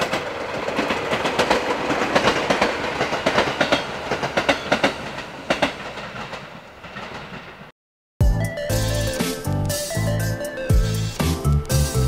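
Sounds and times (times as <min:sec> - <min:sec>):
train wheels clicking over rail joints: 0:00.0 - 0:07.6.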